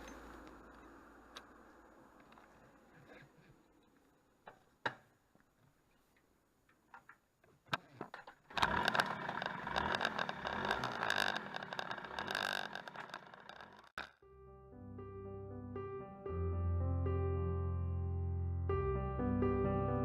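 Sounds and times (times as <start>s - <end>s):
small two-stroke engine running: 8.5s - 14.2s.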